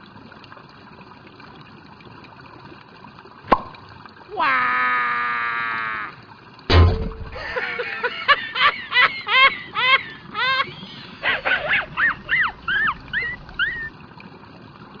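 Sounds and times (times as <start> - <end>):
high-pitched animal-like calls: 4.3 - 6.2, 10.4 - 13.9.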